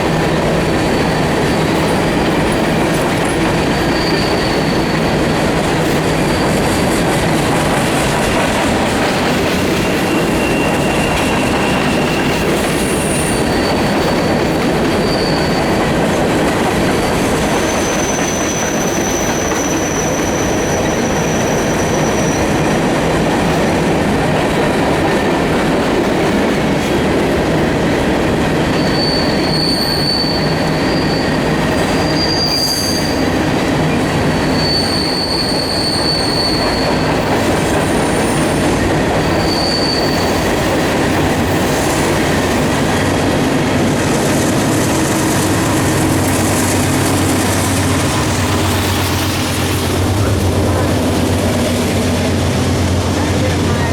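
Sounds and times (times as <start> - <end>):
train wheels rumbling on rail: 0.0 - 53.9
high-pitched wheel squeals: 0.3 - 8.0, 9.3 - 22.8, 28.7 - 33.4, 34.2 - 40.6.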